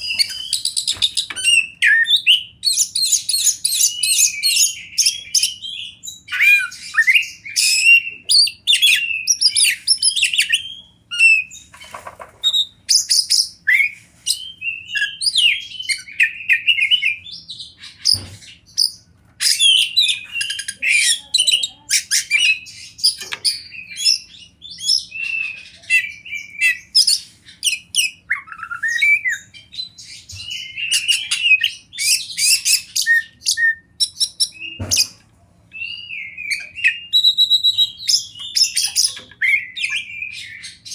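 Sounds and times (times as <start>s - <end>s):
bird singing whistled phrases: 0.0s - 11.6s, 19.4s - 35.1s, 35.8s - 40.8s.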